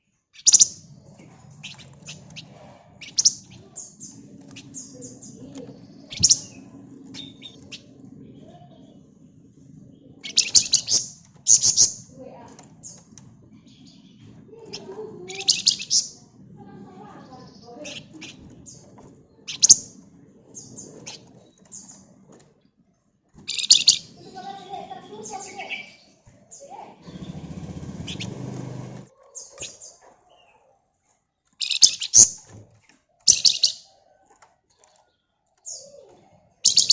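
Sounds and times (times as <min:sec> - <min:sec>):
songbird chirping and trilling: 0:00.0 - 0:36.9
bird singing sharp high calls: 0:00.4 - 0:00.9, 0:01.6 - 0:09.0, 0:10.1 - 0:12.1, 0:14.8 - 0:16.2, 0:23.5 - 0:28.6, 0:31.6 - 0:32.4, 0:33.3 - 0:33.9, 0:36.6 - 0:36.9.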